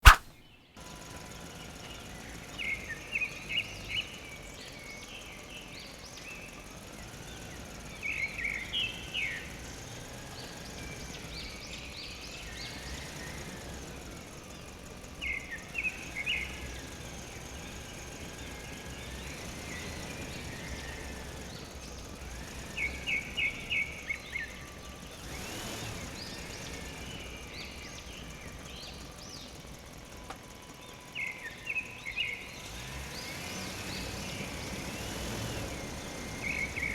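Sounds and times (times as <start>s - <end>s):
outdoor background noise: 0.0s - 36.9s
bird chirping: 26.3s - 36.9s.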